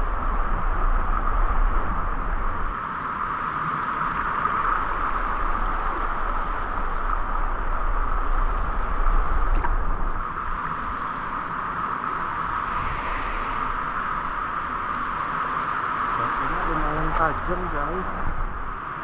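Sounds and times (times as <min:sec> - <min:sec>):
low rumble: 0:16.1 - 0:18.8.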